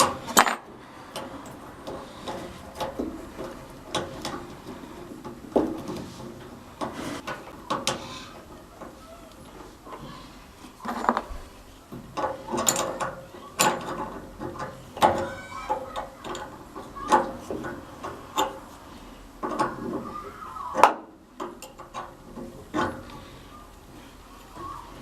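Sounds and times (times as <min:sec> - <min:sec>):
metal tools knocking and clanking: 0:12.0 - 0:18.6, 0:20.8 - 0:23.1.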